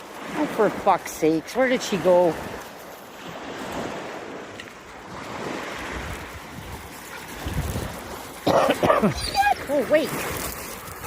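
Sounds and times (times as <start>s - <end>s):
ocean surf waves: 0.0s - 11.0s
wind buffeting microphone: 3.3s - 11.0s.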